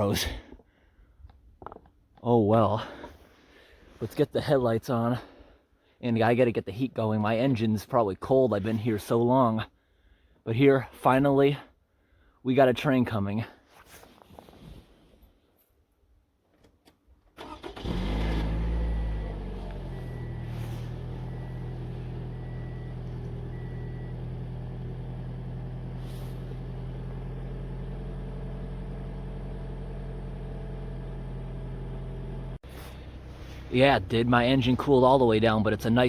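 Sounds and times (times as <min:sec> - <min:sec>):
car engine starting and idling: 0:16.9 - 0:36.0
short beeping tone: 0:18.8 - 0:24.3.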